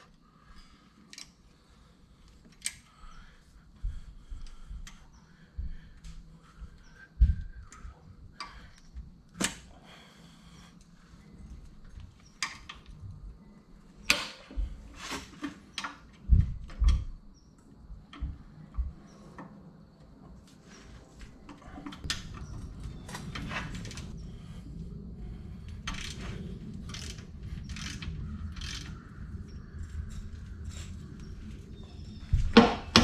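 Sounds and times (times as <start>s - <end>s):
steady low hum: 0.0s - 33.0s
regular clicks: 1.0s - 1.6s, 2.2s - 3.0s, 10.7s - 13.4s
sharp knocks: 32.4s - 33.0s.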